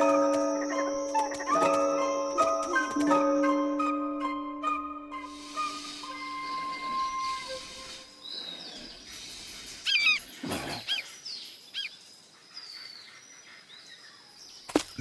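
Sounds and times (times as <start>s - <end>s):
countryside ambience: 0.0s - 15.0s
birds chirping: 5.1s - 15.0s.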